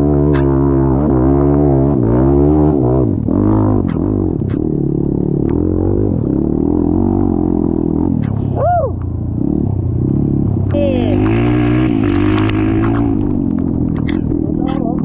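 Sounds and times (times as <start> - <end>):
off-road engine labouring: 0.0 - 15.0.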